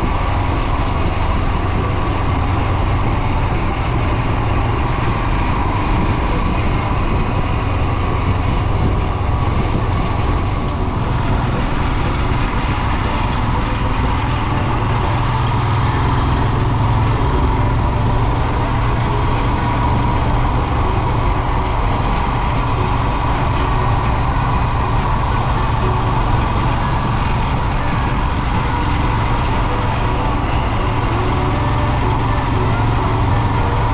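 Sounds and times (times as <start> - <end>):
motorcycle engine running: 0.0 - 33.9
music playing: 0.0 - 33.9.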